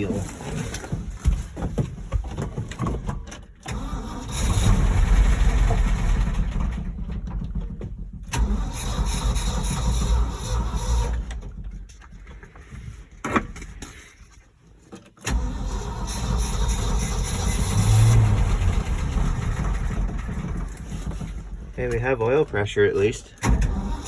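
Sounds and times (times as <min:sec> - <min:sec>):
truck engine starting and sputtering: 0:02.7 - 0:13.8, 0:15.2 - 0:24.0.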